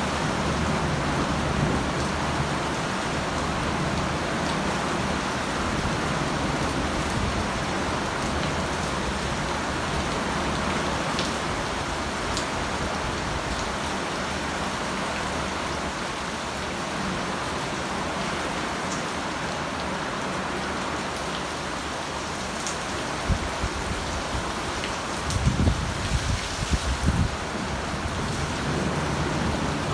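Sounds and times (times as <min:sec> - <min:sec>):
heavy rain hissing: 0:24.3 - 0:29.9.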